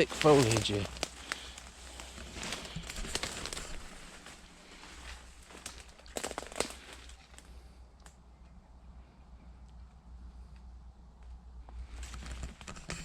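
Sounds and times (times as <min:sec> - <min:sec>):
twigs snapping: 0:00.0 - 0:04.4, 0:05.4 - 0:08.2
rustling leaves and twigs: 0:00.0 - 0:08.2, 0:09.8 - 0:13.0.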